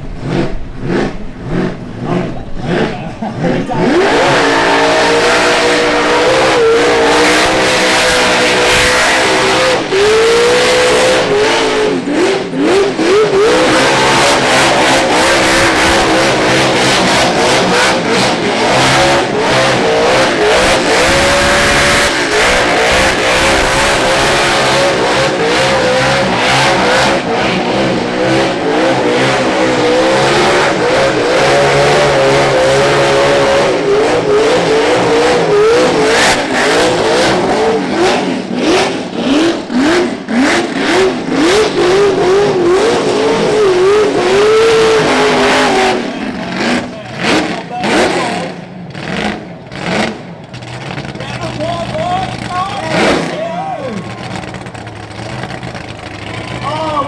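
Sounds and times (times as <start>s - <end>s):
steady rush of noise: 0.0s - 38.6s
car engine revving: 0.0s - 57.0s.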